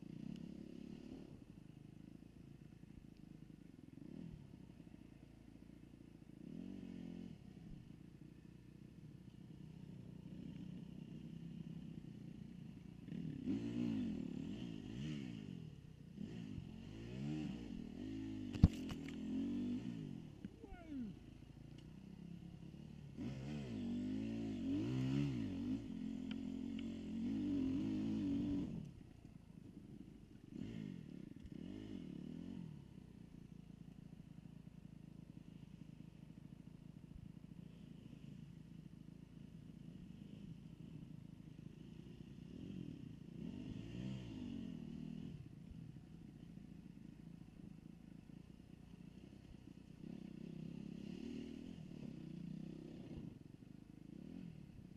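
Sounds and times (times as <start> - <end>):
dirt bike engine revving: 13.0 - 21.3, 23.0 - 28.9, 30.5 - 32.8, 42.6 - 45.2.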